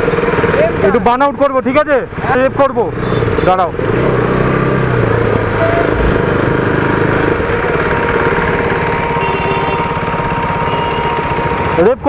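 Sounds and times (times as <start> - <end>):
motorcycle engine idling: 5.1 - 12.0.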